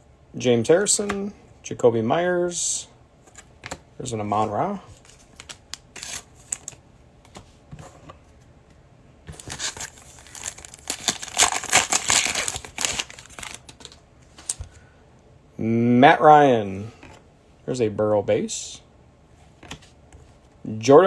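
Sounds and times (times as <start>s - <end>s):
foil wrapper tearing and crinkling: 5.4s - 6.8s, 9.4s - 14.6s.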